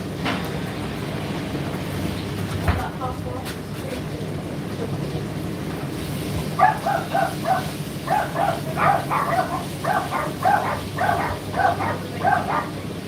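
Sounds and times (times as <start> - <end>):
dog barking: 6.6 - 13.0
tumble dryer humming: 6.6 - 13.0.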